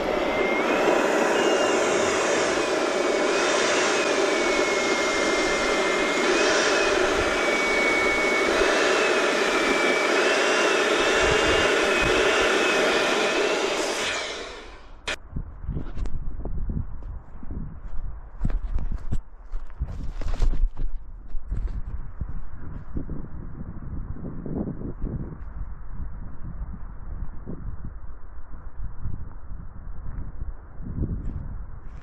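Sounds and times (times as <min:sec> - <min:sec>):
balloon inflator blowing air: 0:00.0 - 0:15.2
motor whine: 0:00.0 - 0:15.2.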